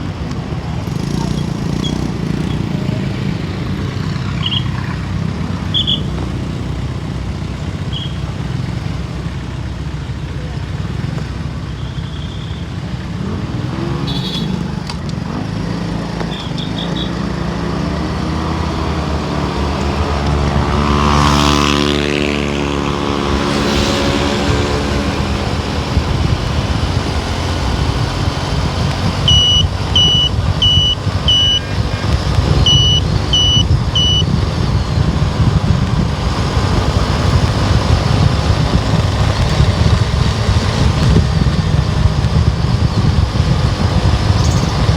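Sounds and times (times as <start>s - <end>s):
car engine and tyres rumbling: 0.0s - 44.9s
passing vehicle engine: 12.7s - 44.9s
short high electronic beeps: 29.2s - 34.3s.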